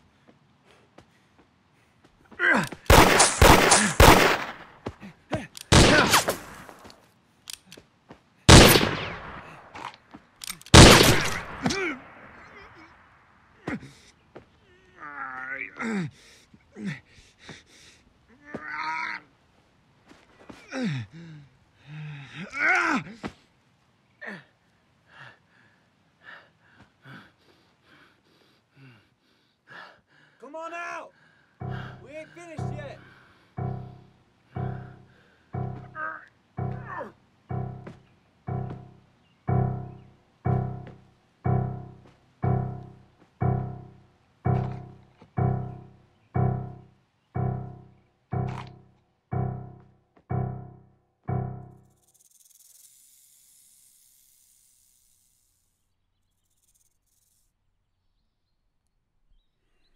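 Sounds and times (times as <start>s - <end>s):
revolver gunshots: 2.9s - 4.7s, 5.7s - 6.7s, 8.5s - 9.5s, 10.7s - 12.4s.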